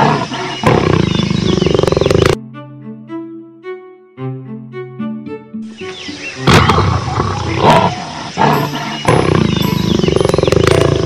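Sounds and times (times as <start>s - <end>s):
big cat growling and snarling: 0.0s - 2.4s, 6.5s - 11.0s.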